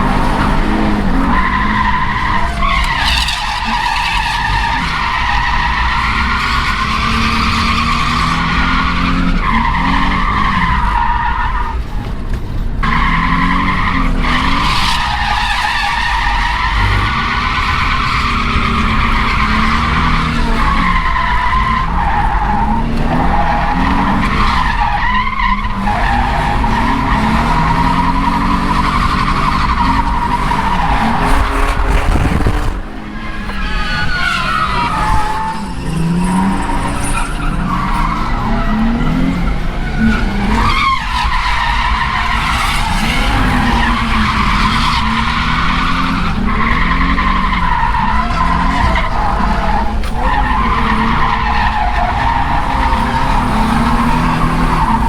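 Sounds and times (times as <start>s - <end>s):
car engine revving hard: 12.8s - 55.0s
tyres squealing: 12.9s - 55.0s.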